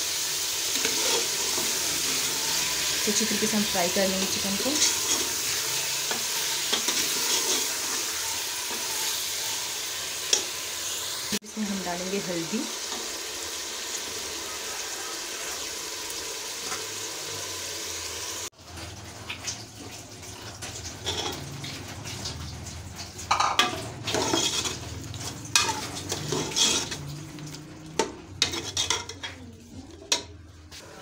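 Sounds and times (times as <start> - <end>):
chicken sizzling in a pot: 0.0 - 31.0
metal ladle scraping a pot: 0.7 - 9.8, 20.9 - 22.2, 23.3 - 31.0.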